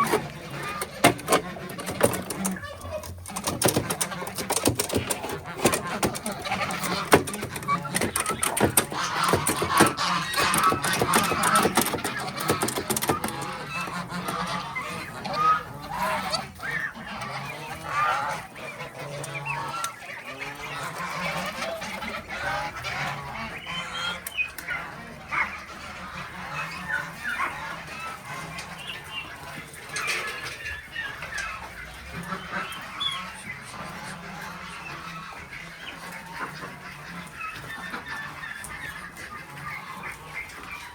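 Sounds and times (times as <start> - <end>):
farm birds calling: 0.0 - 40.9.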